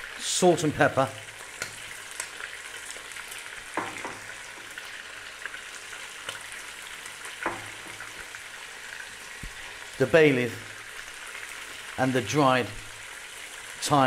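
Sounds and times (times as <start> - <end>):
meat sizzling in oil: 0.0 - 14.0
loud knocks: 3.8 - 4.3.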